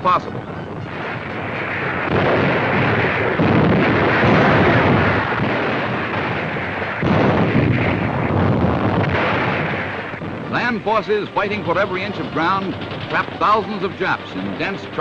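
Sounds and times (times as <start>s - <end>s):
gunfire and explosions: 0.0s - 15.0s.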